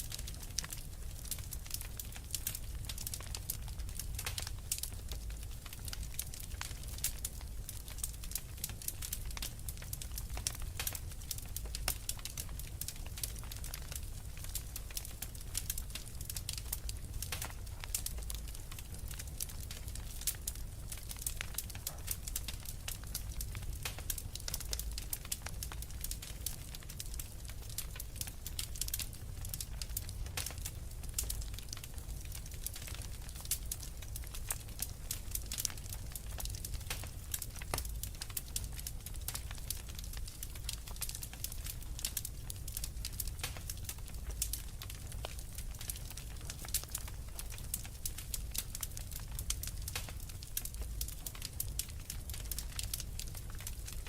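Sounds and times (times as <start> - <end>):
low rumble of flame: 0.0 - 54.0
wood fire crackling and popping: 0.0 - 54.0.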